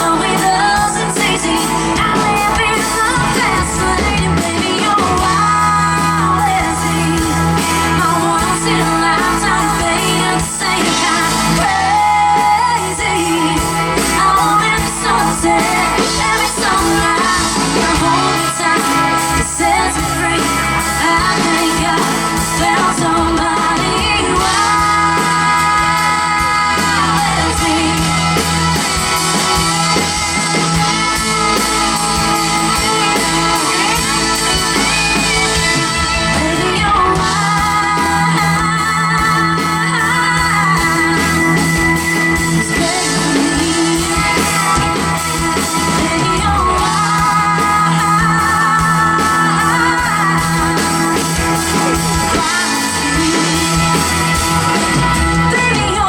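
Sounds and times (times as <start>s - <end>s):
bass line: 0.0s - 56.0s
drum kit: 0.0s - 56.0s
electric guitars playing: 0.0s - 56.0s.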